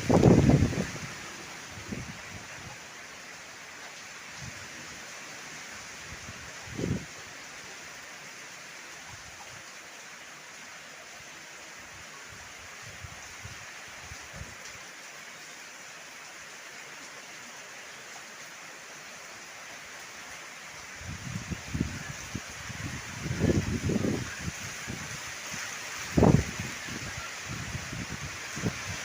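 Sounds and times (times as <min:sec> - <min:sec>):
wind gusting rumbles: 0:00.0 - 0:01.2, 0:26.1 - 0:29.0
heavy rain hissing: 0:00.0 - 0:29.0.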